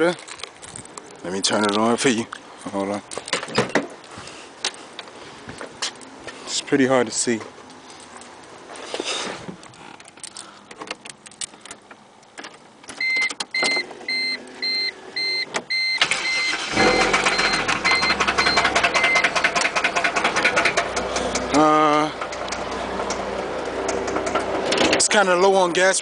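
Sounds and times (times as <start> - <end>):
dashboard warning chime beeping: 13.0 - 19.6
car engine starting and idling: 13.4 - 25.8.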